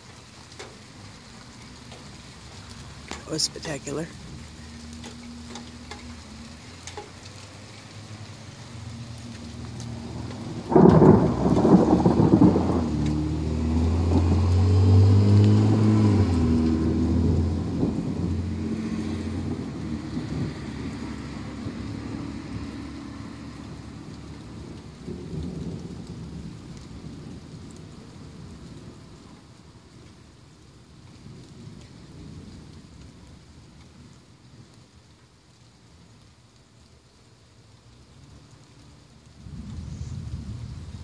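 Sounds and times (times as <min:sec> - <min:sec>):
rain falling: 0:00.0 - 0:41.0
thunder crack and rumble: 0:09.3 - 0:30.1, 0:31.1 - 0:34.8, 0:39.3 - 0:41.0.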